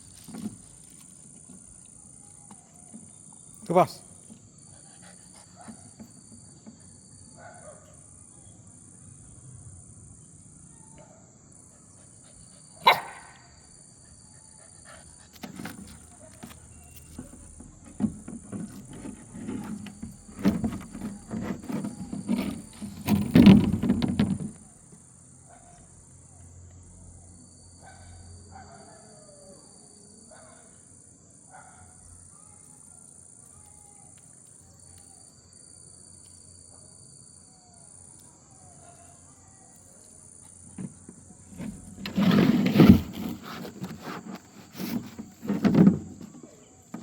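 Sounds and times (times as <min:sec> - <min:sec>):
crickets droning: 0:00.0 - 0:47.0
dog growling and barking: 0:12.8 - 0:13.4.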